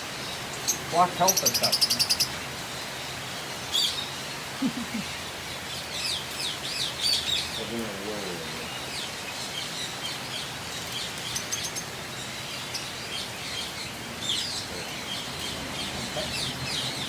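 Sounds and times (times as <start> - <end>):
birds chirping: 0.0 - 17.0
steady background hiss: 0.0 - 17.0.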